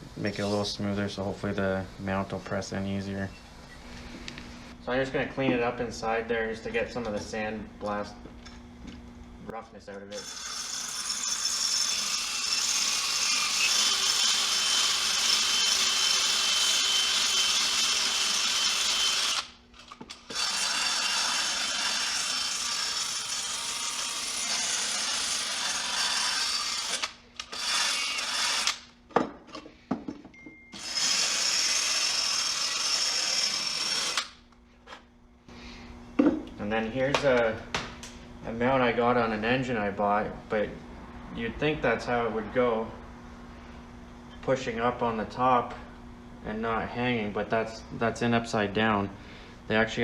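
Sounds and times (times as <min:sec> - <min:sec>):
power tool grinding metal: 0:10.1 - 0:19.5, 0:20.2 - 0:28.9, 0:30.8 - 0:34.4.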